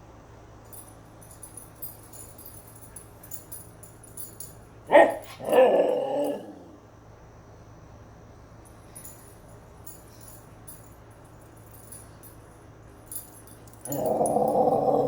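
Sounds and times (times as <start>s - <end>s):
dog yelping and vocalizing: 4.9s - 6.6s.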